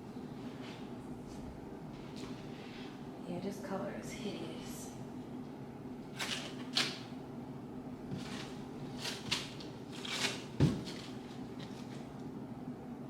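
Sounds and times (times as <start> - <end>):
chair parts rustling and scraping: 8.0 - 12.2.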